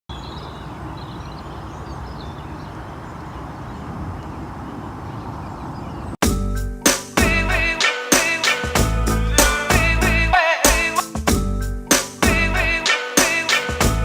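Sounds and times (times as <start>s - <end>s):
faint bird chirps: 0.1s - 6.2s
loud music with a beat: 6.2s - 14.0s.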